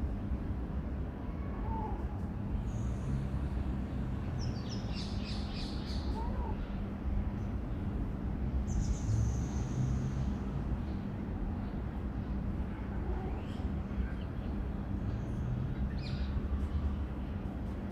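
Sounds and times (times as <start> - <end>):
steady low rumble: 0.0 - 17.9
small birds chirping: 4.2 - 6.8, 8.6 - 11.8.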